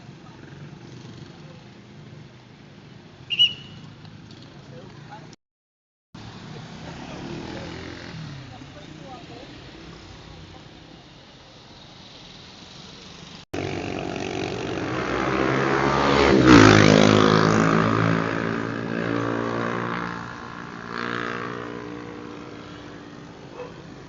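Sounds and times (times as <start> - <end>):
fast motor vehicle passing by: 6.8 - 8.6, 13.1 - 24.0.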